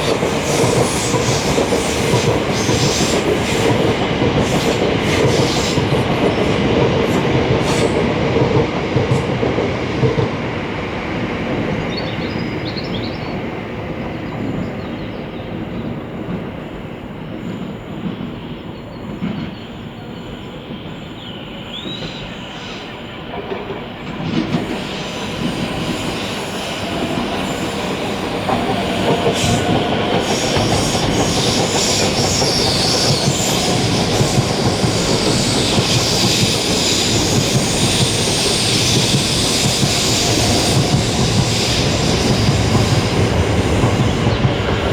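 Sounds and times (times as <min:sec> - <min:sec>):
wheel squeal: 0:24.5 - 0:44.8.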